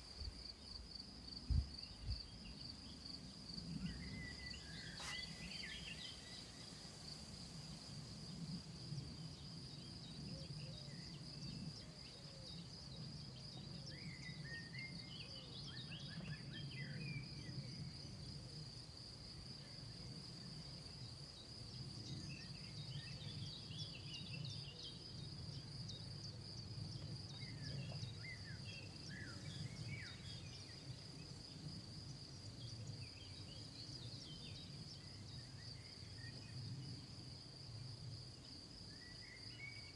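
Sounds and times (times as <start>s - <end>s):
insects trilling: 0.0s - 18.8s.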